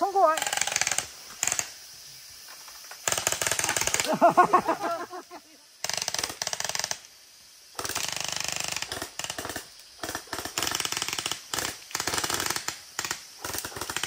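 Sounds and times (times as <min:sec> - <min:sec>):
toy guns firing full-auto: 0:00.4 - 0:01.8, 0:03.0 - 0:04.2, 0:05.8 - 0:07.1, 0:07.8 - 0:14.0.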